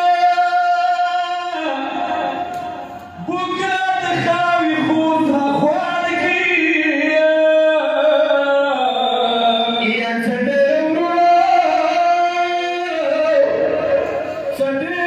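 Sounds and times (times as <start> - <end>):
voice chanting a lament: 0.0 - 15.0.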